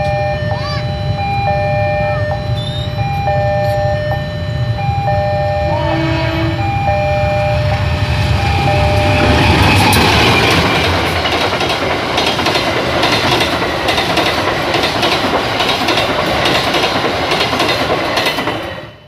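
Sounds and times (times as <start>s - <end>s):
train horn: 5.4s - 7.7s
train wheels clattering on rails: 7.6s - 19.0s.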